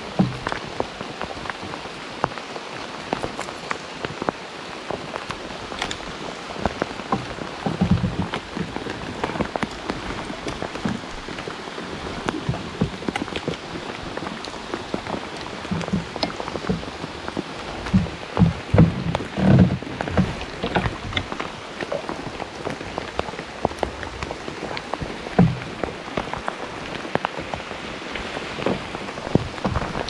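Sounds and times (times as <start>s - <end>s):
heavy rain pouring: 0.0s - 30.0s
dull thumps: 6.7s - 11.4s, 14.9s - 26.3s.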